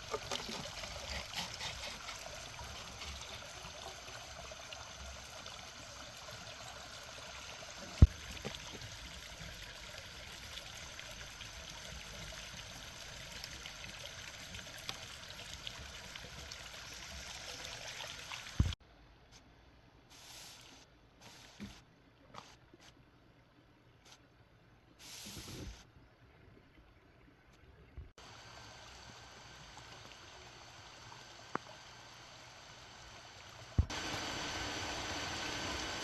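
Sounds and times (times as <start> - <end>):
water trickling: 0.0 - 18.8.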